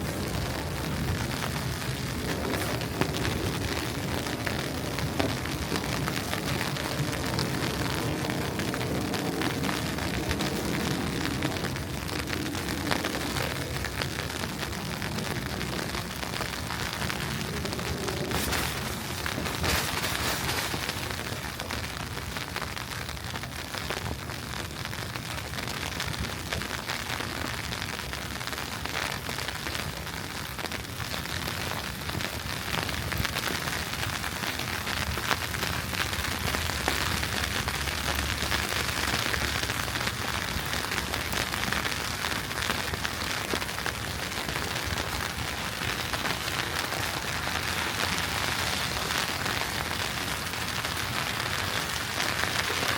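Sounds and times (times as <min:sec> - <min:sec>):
wet snow falling on street: 0:00.0 - 0:52.9.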